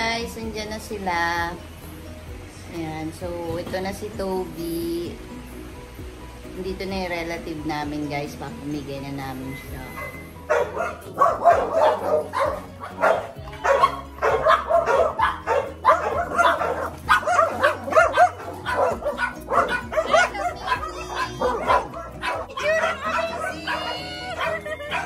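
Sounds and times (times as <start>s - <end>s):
small dog barking: 10.0s - 25.0s.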